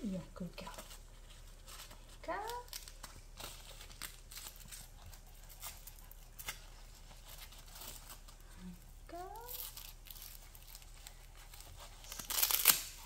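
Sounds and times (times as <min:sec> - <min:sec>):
hook-and-loop strap ripping: 0:12.1 - 0:13.0.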